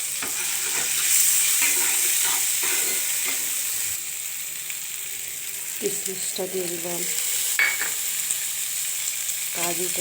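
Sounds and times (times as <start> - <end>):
rice sizzling in hot oil: 0.0 - 10.0
spoon scraping pan: 0.2 - 3.6.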